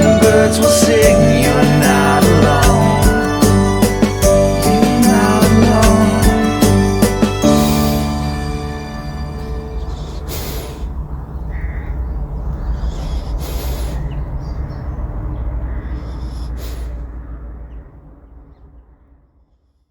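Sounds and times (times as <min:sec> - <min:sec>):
song: 0:00.0 - 0:10.0
birds chirping: 0:00.0 - 0:18.8.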